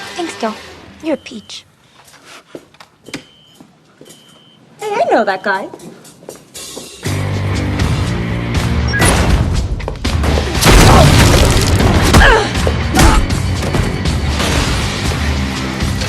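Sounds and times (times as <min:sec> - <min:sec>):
driving action film music: 0:07.0 - 0:10.6, 0:11.7 - 0:16.0.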